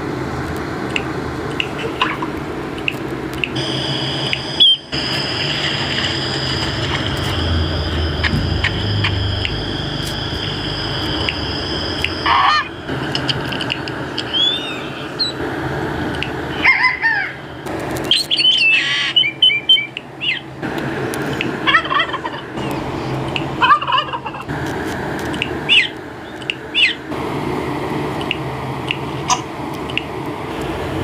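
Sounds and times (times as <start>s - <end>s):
steady low hum: 0.0s - 31.0s
bird calls and chirps: 14.2s - 15.4s, 18.0s - 20.5s, 25.7s - 27.0s.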